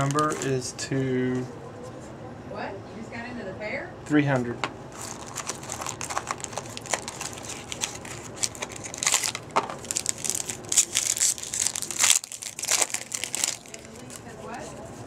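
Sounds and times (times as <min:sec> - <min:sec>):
card pack wrapper crinkling: 0:00.0 - 0:00.6, 0:04.9 - 0:14.3.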